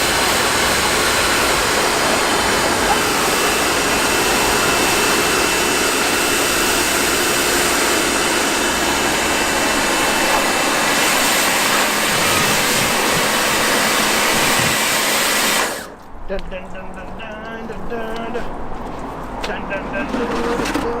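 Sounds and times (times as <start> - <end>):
pressure washer spraying: 0.0 - 16.0.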